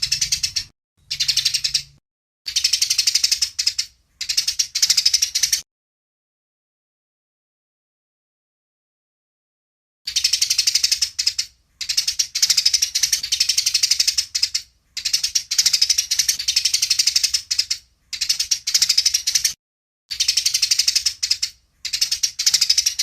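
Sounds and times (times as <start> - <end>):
sparrow harsh chattering calls: 0.0 - 5.6, 10.1 - 23.0.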